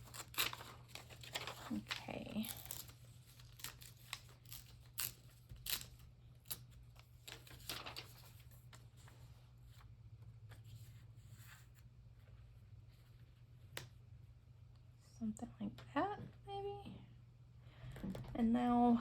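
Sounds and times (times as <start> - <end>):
paper rustling: 0.0 - 13.3.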